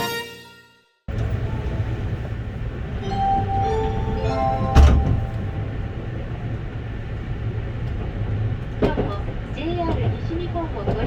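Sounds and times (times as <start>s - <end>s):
train interior rumble: 1.1s - 11.0s
chime melody: 3.0s - 6.1s.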